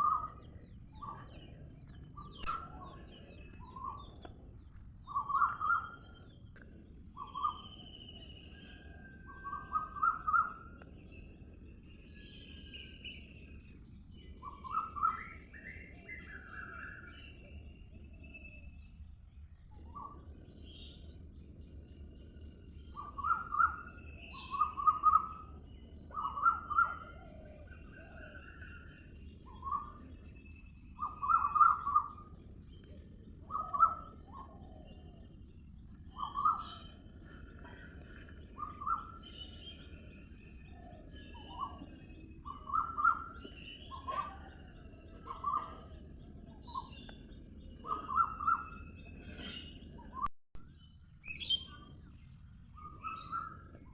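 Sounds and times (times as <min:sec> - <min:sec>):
birds calling: 0:00.0 - 0:11.2, 0:30.9 - 0:50.2.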